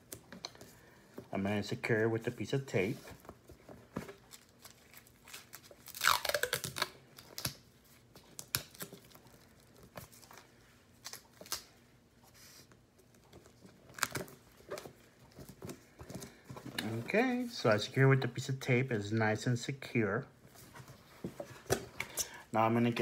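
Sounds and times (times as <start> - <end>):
tape crinkling and tapping: 3.2 - 11.7, 13.0 - 17.2
tape tearing: 4.0 - 10.3.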